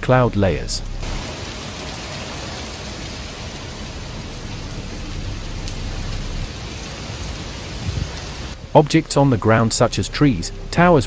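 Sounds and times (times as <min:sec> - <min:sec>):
heavy rain hissing: 0:00.0 - 0:11.0
low rumbling: 0:00.0 - 0:11.0.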